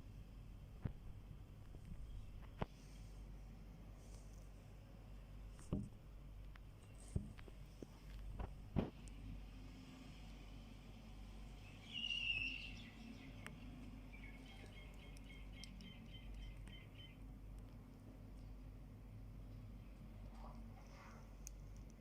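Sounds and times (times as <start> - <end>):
faint low hum: 0.0 - 22.0
small bird chirping: 11.4 - 17.5.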